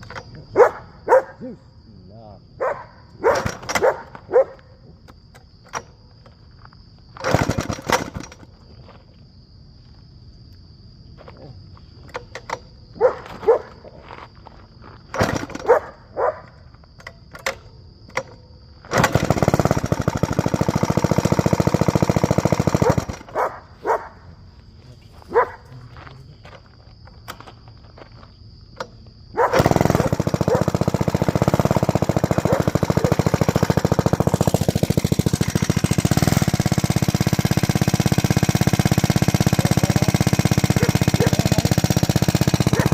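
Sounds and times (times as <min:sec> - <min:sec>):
small engine running: 0:03.3 - 0:04.2, 0:07.2 - 0:08.6, 0:15.1 - 0:15.8, 0:17.4 - 0:23.6, 0:29.4 - 0:42.9
small engine kick-started: 0:03.3 - 0:04.3, 0:05.1 - 0:06.4, 0:07.1 - 0:08.6, 0:12.1 - 0:12.8, 0:15.1 - 0:15.9, 0:17.0 - 0:23.4, 0:28.8 - 0:42.9.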